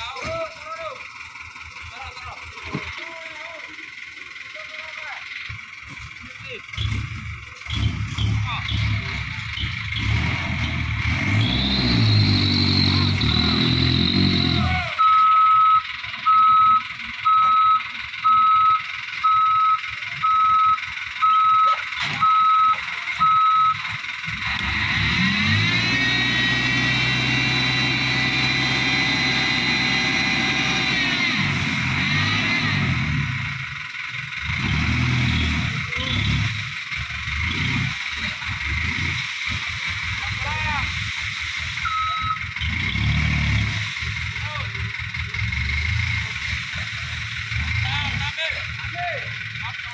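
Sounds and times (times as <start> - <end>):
diesel truck engine running: 0.0 - 49.9
reversing alarm beeping: 11.4 - 24.2, 41.1 - 42.8.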